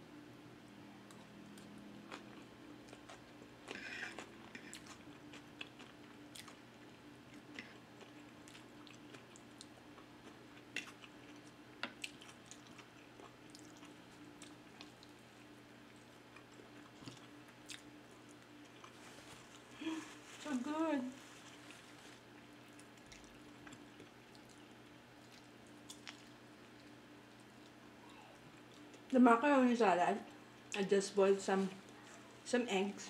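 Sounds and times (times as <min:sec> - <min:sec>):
wet chewing crunches: 0:21.4 - 0:27.8.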